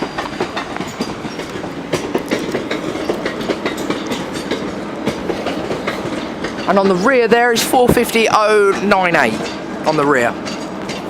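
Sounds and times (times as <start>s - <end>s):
train hum: 0.0s - 11.0s
train wheels clicking over rail joints: 0.0s - 11.0s.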